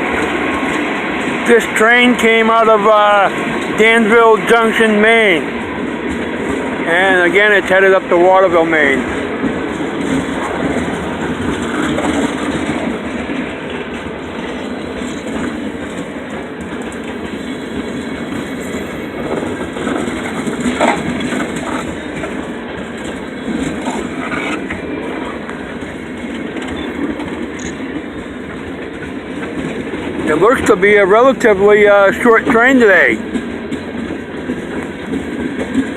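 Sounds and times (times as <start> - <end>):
train wheels rumbling on rail: 0.0 - 35.9
wheels clicking over rail joints: 0.0 - 35.9.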